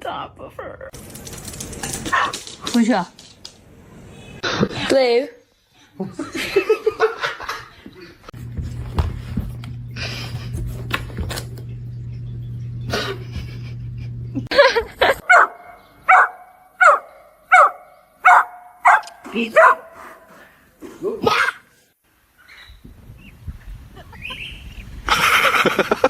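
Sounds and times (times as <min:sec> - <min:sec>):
low hum: 0:08.4 - 0:15.2
dog barking: 0:15.3 - 0:20.2.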